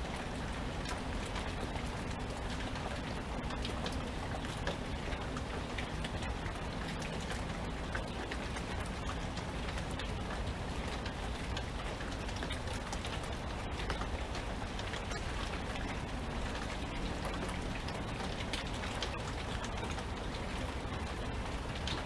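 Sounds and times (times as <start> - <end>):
raindrops pattering: 0.0 - 22.0.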